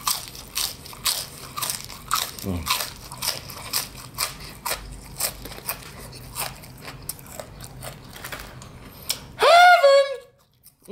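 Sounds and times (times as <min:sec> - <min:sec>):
crispy chicken skin crunching: 0:00.0 - 0:09.2
short loud pitched cry: 0:09.4 - 0:10.2.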